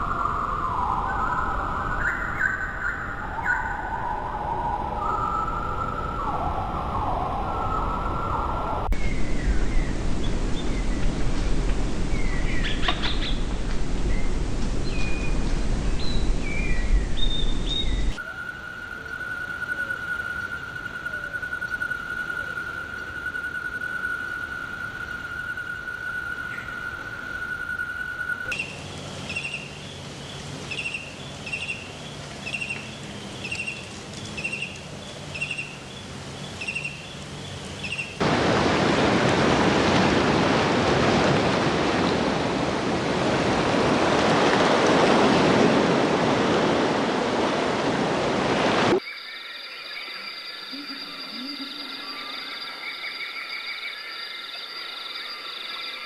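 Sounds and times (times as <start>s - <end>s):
high-pitched whine: 48.9s - 56.0s.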